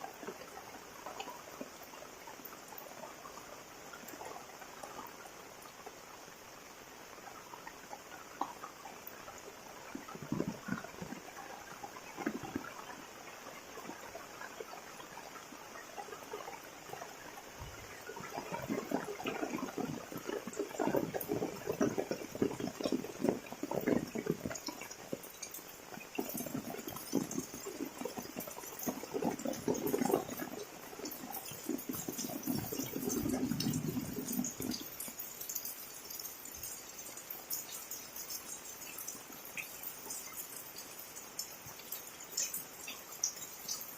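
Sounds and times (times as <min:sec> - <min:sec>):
running splashing water: 0:07.1 - 0:43.9
heavy rain: 0:16.8 - 0:36.2.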